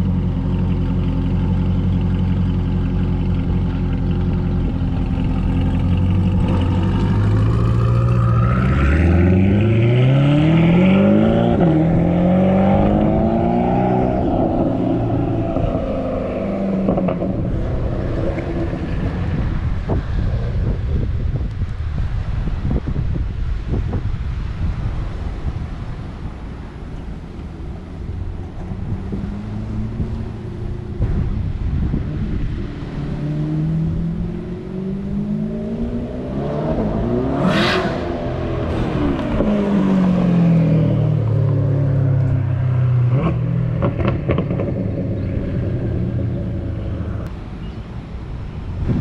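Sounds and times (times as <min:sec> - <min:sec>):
sports car driving past: 0:03.9 - 0:20.7, 0:28.1 - 0:47.3.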